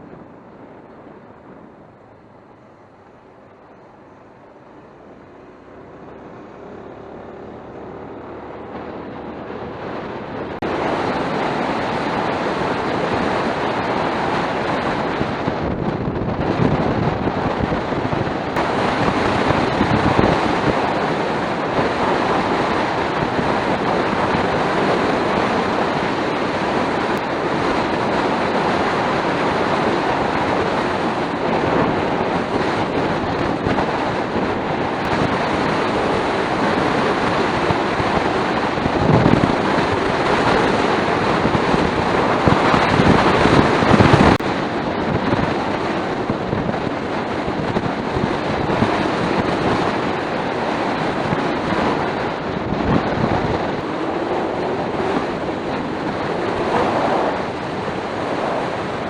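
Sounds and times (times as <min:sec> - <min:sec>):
scooter road noise: 0:00.0 - 0:59.0
wind rush over microphone: 0:00.0 - 0:59.0.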